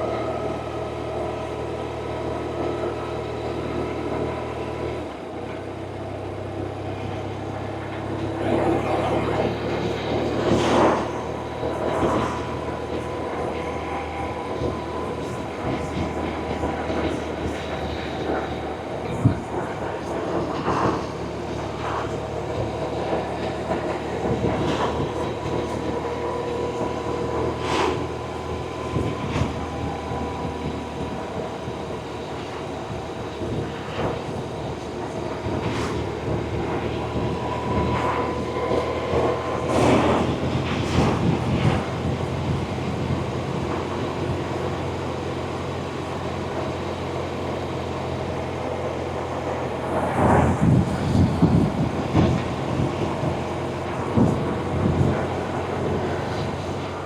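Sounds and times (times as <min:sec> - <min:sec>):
road noise: 0:00.0 - 0:57.0
wind noise: 0:08.4 - 0:57.0.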